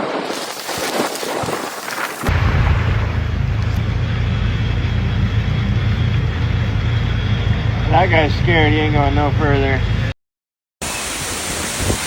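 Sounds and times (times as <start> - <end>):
heavy low rumble: 2.3 - 10.2
hiss of wind and water: 10.8 - 12.0.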